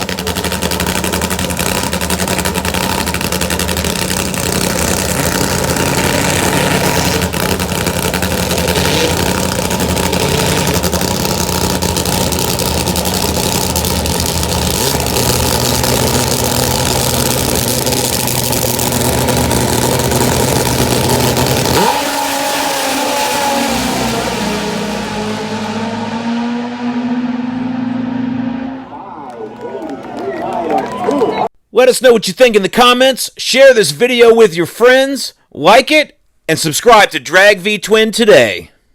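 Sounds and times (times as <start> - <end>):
drag motorcycle engine rumbling: 0.0 - 29.2
high engine note rising: 0.0 - 31.5.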